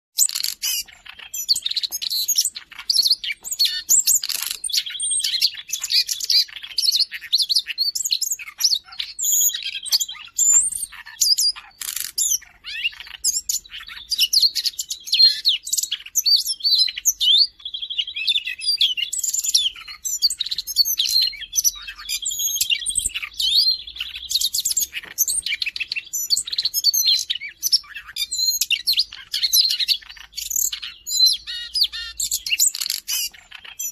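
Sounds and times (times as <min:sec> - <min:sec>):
bird warbling song: 0:00.2 - 0:33.9.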